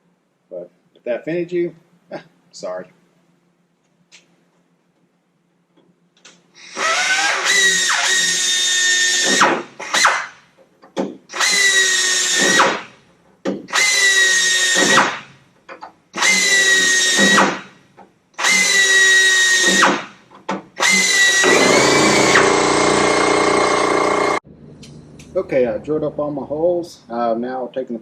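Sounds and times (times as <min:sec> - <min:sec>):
hand drill whining: 0:06.6 - 0:10.3, 0:11.3 - 0:12.8, 0:13.7 - 0:15.2, 0:16.2 - 0:17.6, 0:18.4 - 0:20.0, 0:20.8 - 0:24.4.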